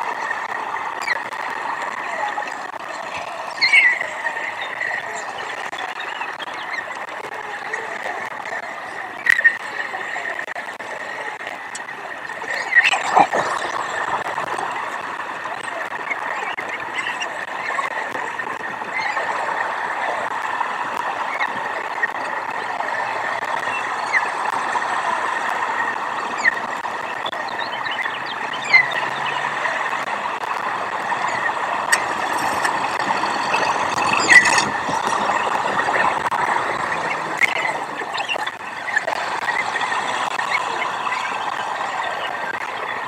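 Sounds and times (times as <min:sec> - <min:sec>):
distant traffic: 0:00.0 - 0:43.0
brief squeal: 0:31.9 - 0:35.4.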